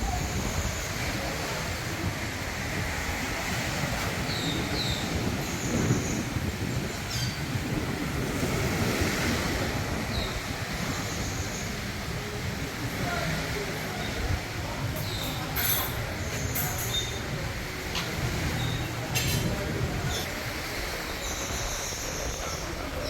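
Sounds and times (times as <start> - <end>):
wind rushing: 0.0 - 15.0
sea: 0.0 - 23.0
wind buffeting microphone: 0.0 - 23.0.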